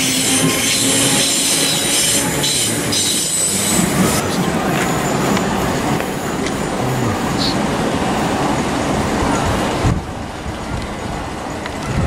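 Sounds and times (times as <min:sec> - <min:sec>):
wheels rumbling on track: 0:00.0 - 0:12.0.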